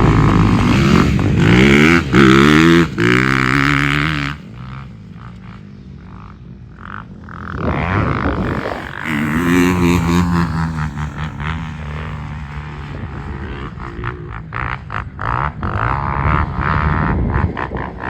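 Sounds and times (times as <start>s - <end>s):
vehicle engine running: 8.3s - 15.2s.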